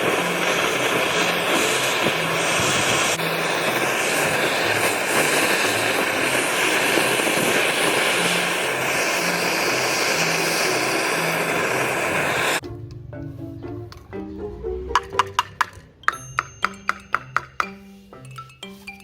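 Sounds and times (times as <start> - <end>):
brush cutter engine running: 0.0 - 12.6.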